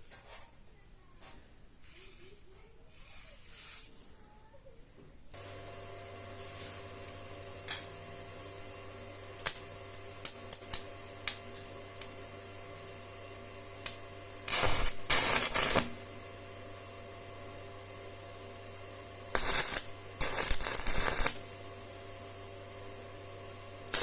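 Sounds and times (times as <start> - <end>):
steady hum: 5.3 - 24.0.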